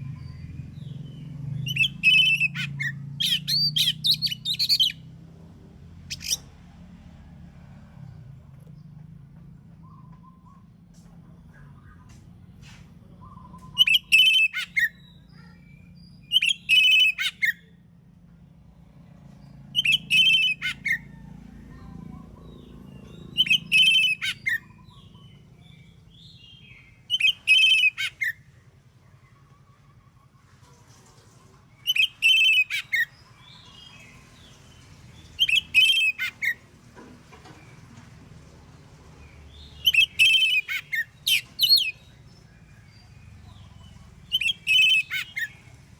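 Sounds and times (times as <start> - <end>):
bird singing: 0.0 - 5.2, 6.0 - 6.5, 13.1 - 17.8, 19.4 - 29.9, 31.7 - 36.7, 39.0 - 45.9.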